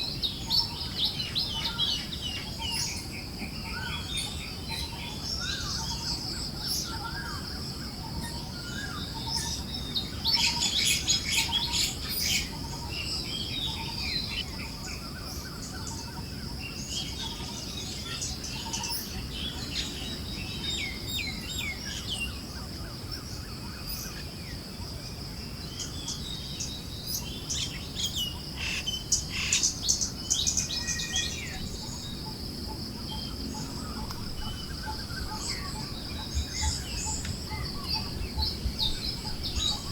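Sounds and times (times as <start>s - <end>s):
birds chirping: 25.6s - 39.9s.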